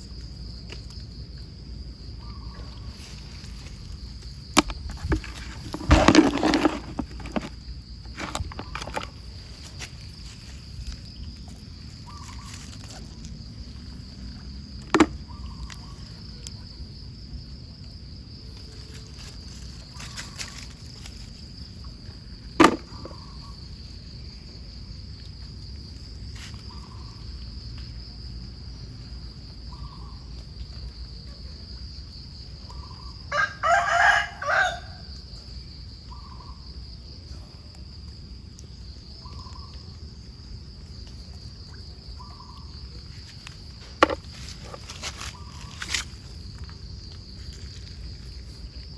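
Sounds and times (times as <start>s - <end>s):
high insect drone: 0.0s - 37.8s, 38.7s - 48.9s.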